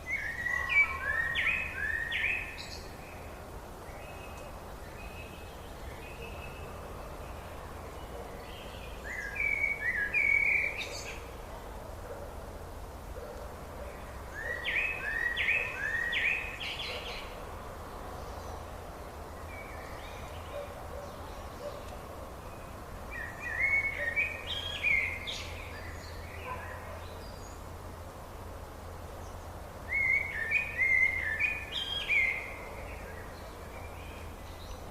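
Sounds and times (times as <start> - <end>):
songbird whistling: 29.9 - 32.5.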